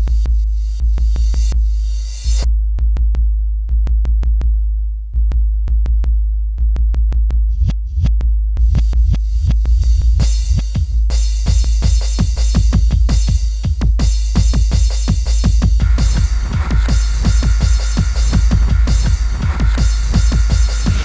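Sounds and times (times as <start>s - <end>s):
deep sustained bass: 0.0s - 21.0s
drum machine hits: 7.9s - 21.0s.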